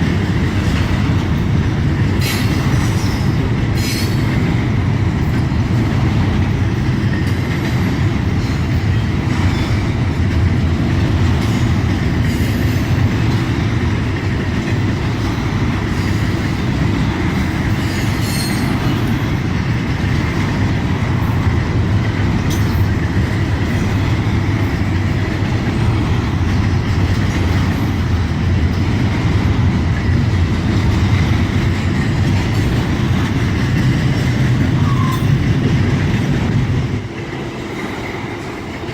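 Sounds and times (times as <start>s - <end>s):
train wheels rumbling on rail: 0.0s - 38.9s
high wheel squeal: 34.8s - 35.4s.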